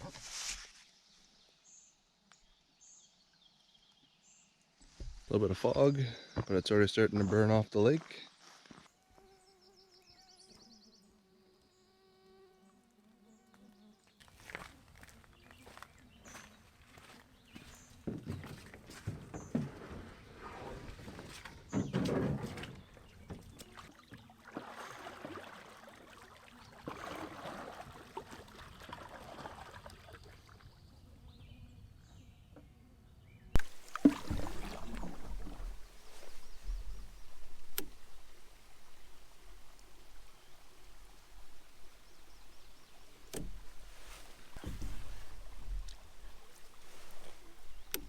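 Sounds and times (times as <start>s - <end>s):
light water noise: 12.7s - 31.5s, 33.5s - 48.0s
canoe paddle strokes in water: 14.2s - 30.8s, 33.6s - 48.0s.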